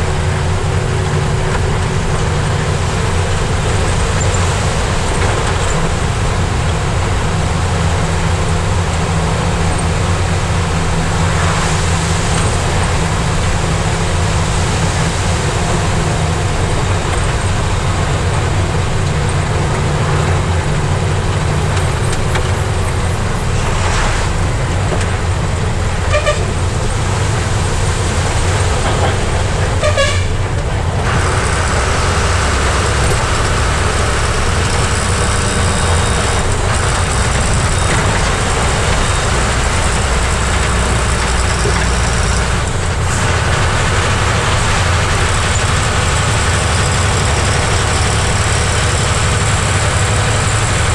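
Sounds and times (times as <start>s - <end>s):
truck diesel engine running: 0.0s - 50.9s
horn toots: 26.0s - 26.8s, 29.8s - 32.1s.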